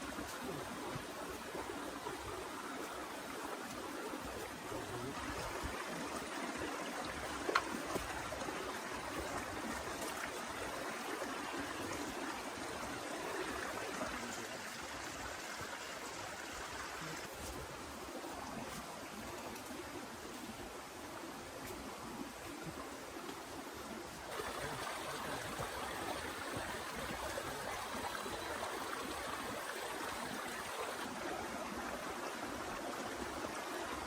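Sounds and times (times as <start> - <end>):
water rushing: 0.0 - 34.0.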